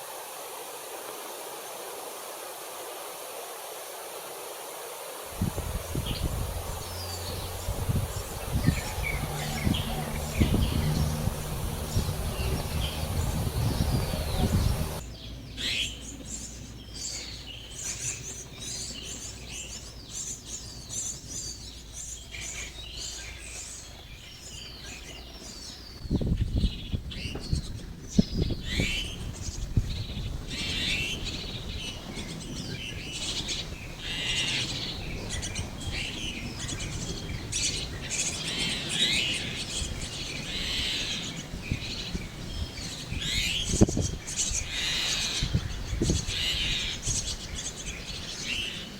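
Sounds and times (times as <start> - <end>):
starlings chirping: 5.3 - 48.9
low rumble: 5.4 - 15.0.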